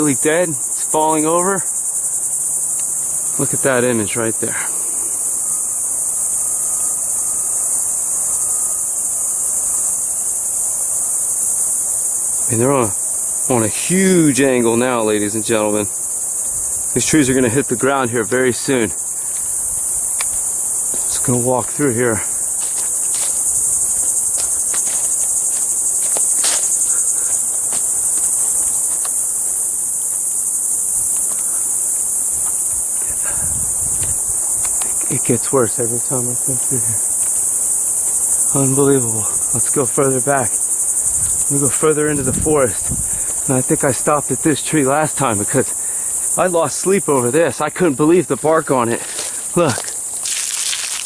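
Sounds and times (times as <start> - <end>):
insect chorus shrilling: 0.0 - 51.0
footsteps through dry undergrowth: 19.2 - 21.3, 22.1 - 30.3, 48.8 - 51.0.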